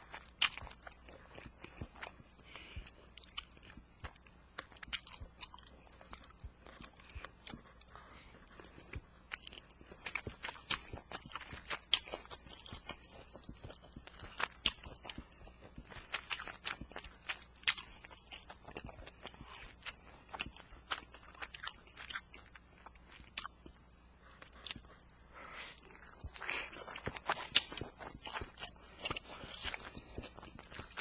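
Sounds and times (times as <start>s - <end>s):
person chewing food: 0.0s - 31.0s
mouth clicks and crunches: 8.5s - 23.8s, 24.4s - 31.0s.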